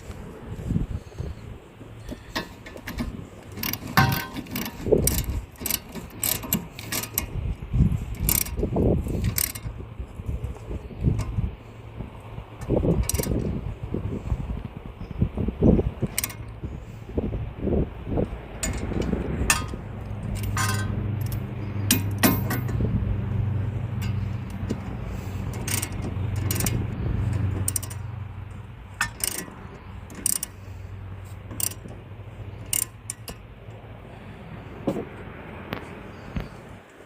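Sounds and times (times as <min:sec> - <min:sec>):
metallic tool clicks and clinks: 0:18.6 - 0:22.8, 0:25.6 - 0:28.0.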